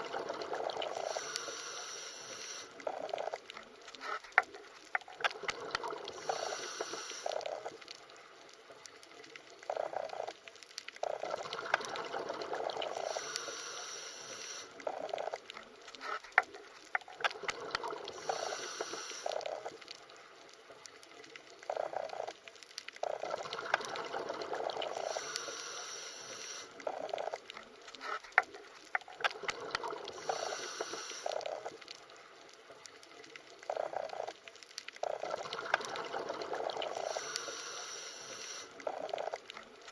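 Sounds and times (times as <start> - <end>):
underwater bubbling water: 0.0 - 39.9.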